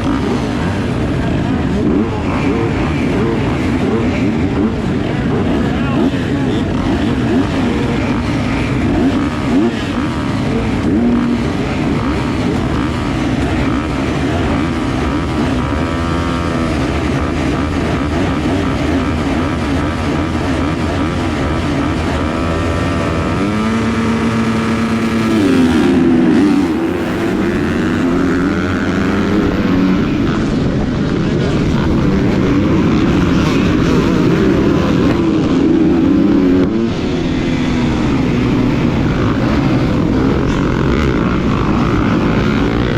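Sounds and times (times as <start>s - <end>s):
motocross bike engine revving: 0.0s - 42.9s
other motorbike engines: 0.0s - 42.9s.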